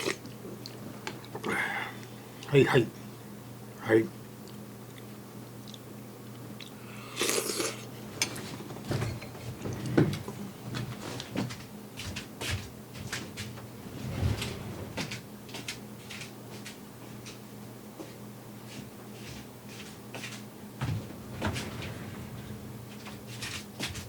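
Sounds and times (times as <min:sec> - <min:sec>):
short rattle: 0:20.9 - 0:24.0.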